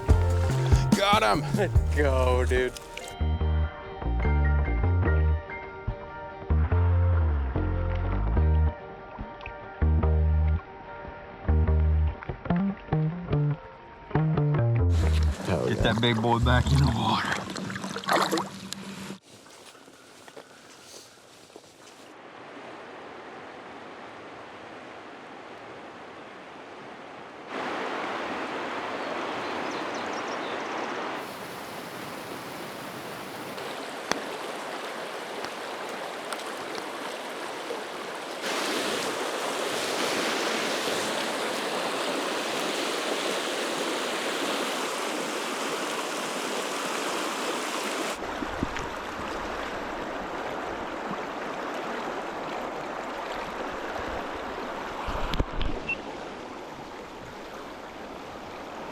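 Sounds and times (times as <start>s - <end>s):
river water flowing: 0.0s - 3.2s, 22.0s - 58.9s.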